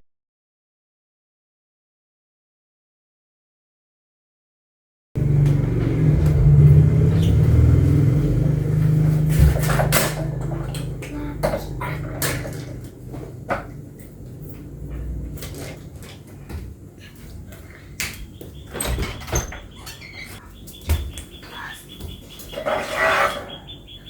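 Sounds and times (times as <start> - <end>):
rumble of handling plastic parts: 5.2 - 21.2.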